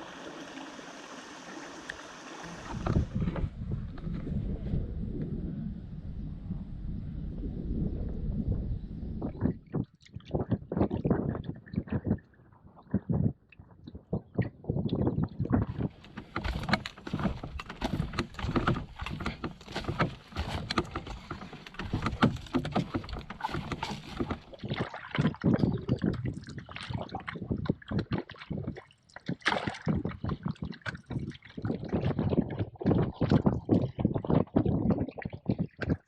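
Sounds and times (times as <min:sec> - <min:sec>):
paddles splashing water: 0:00.0 - 0:03.5, 0:15.7 - 0:27.3
paddles knocking against hull: 0:15.2 - 0:36.0.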